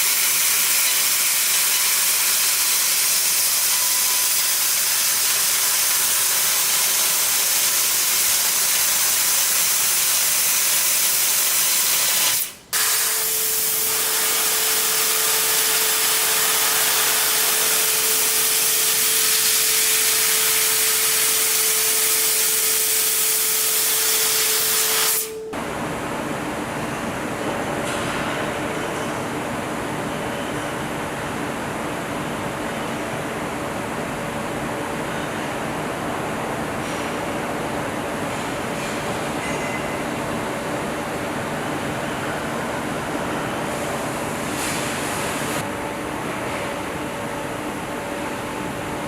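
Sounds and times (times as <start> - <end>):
laser cutter gas hissing: 0.1 - 25.5
steady machine hum: 12.5 - 27.9.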